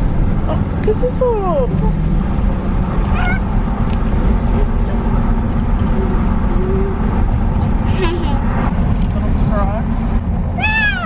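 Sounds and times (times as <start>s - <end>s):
steady low rumble: 0.0s - 11.0s
cat meowing: 3.0s - 3.5s, 10.6s - 11.0s.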